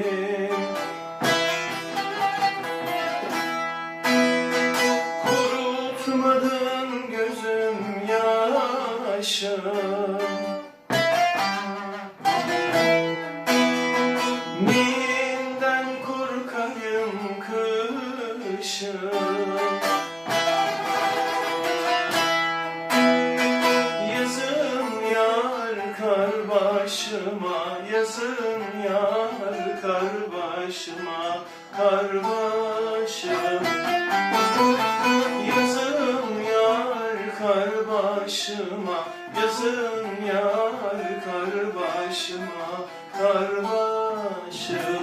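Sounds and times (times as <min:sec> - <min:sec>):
person singing: 0:00.0 - 0:03.4, 0:04.7 - 0:22.2, 0:22.9 - 0:45.0
plucked string instrument: 0:00.0 - 0:45.0.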